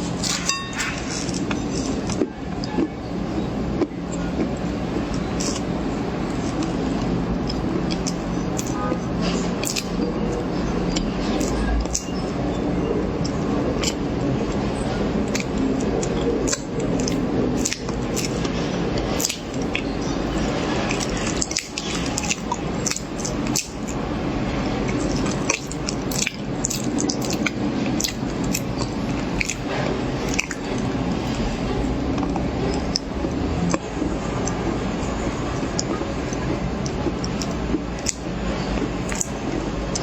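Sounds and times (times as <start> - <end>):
background hum: 0.0 - 40.0
wet chewing of corn: 3.8 - 12.2, 15.2 - 24.0, 24.8 - 31.9, 35.6 - 40.0.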